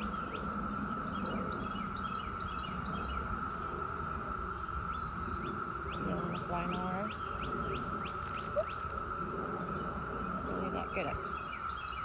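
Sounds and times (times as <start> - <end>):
cicadas droning: 0.0 - 12.0
short bird chirps: 8.0 - 8.9.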